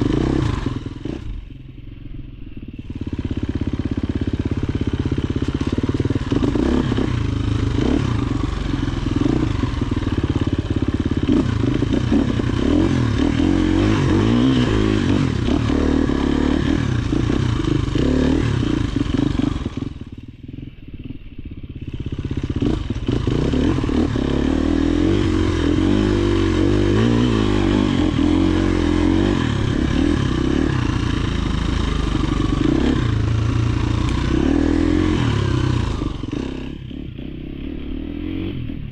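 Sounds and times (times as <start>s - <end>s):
dirt bike engine: 0.0s - 38.9s.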